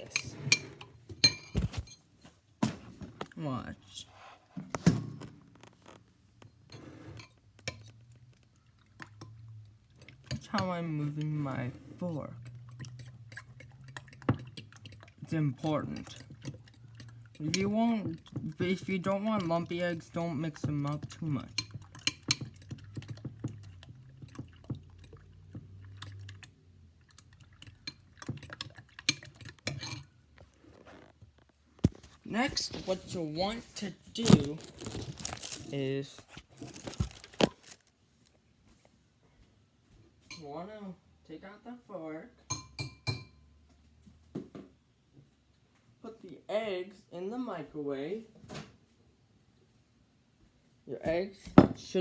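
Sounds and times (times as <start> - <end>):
fork beating eggs in a bowl: 8.8 - 30.1
fork scraping against a bowl: 11.2 - 18.4.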